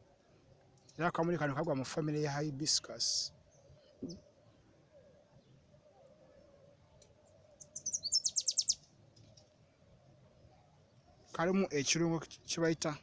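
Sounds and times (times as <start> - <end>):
bird chirping: 2.6 - 12.1.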